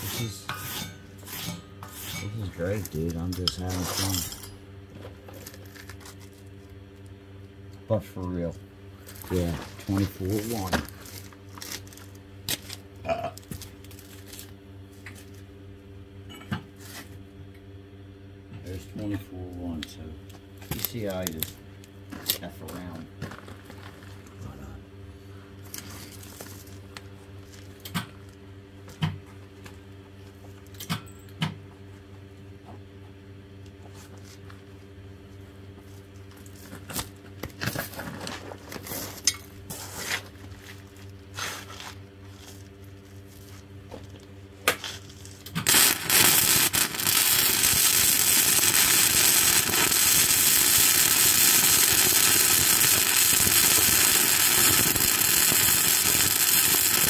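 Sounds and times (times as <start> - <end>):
welding arc crackling hiss: 0.0 - 1.6, 9.0 - 11.9, 45.6 - 57.0.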